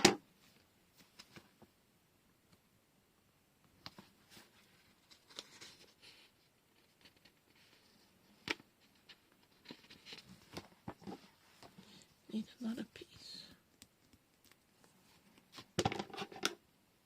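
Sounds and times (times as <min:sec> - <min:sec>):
tape and paper rustling: 0:03.9 - 0:07.9.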